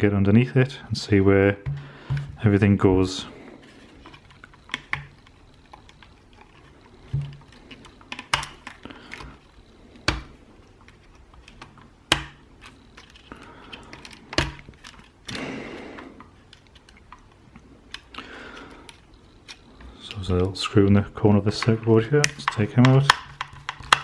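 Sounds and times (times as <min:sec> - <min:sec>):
tool clicks and knocks: 0:21.6 - 0:24.0.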